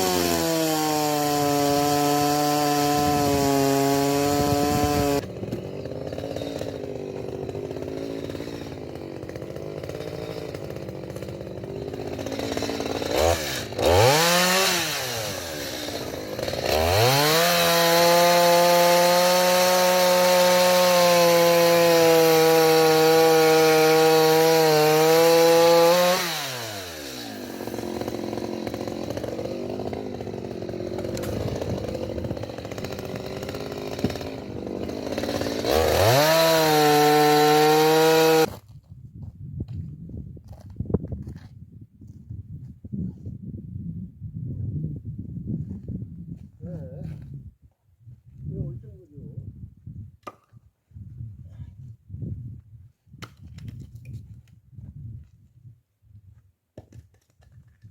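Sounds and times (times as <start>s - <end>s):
chainsaw idling and revving: 0.0s - 38.5s
chainsaw cutting logs: 0.0s - 38.7s, 50.2s - 50.6s.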